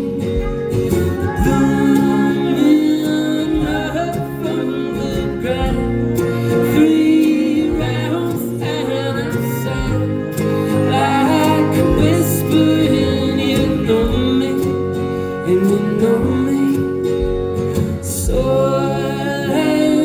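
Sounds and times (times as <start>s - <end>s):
folk band playing: 0.0s - 20.0s
guitar: 0.0s - 20.0s
person singing: 0.0s - 20.0s.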